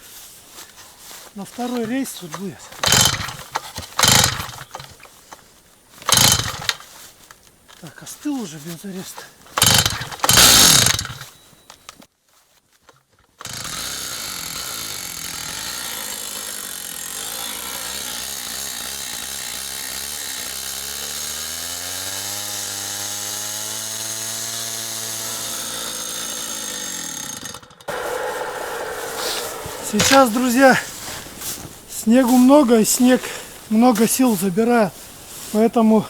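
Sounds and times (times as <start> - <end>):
cut-off saw cutting steel: 22.2 - 31.7.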